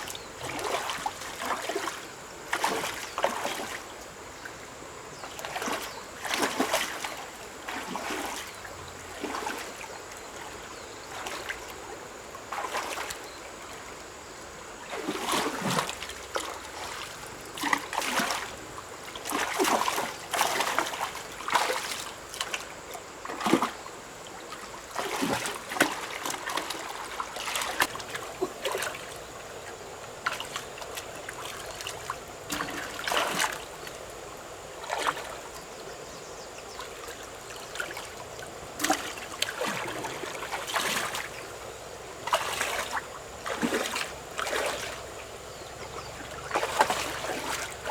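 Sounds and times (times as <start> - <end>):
river water splashing: 0.0 - 47.9
water trickling: 0.0 - 47.9.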